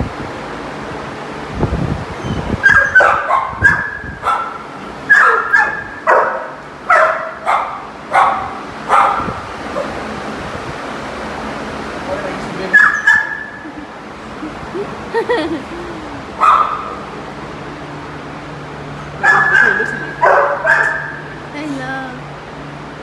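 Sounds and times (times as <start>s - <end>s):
dog yipping: 2.2s - 10.0s, 12.7s - 13.8s, 16.4s - 17.0s, 19.2s - 21.4s.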